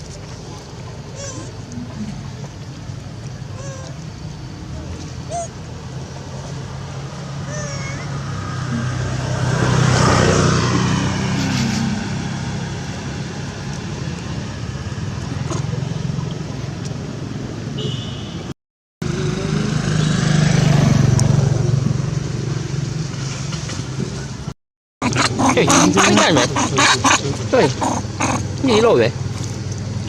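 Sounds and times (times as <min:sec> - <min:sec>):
vehicle engine passing by: 0:01.2 - 0:17.7, 0:19.0 - 0:24.5.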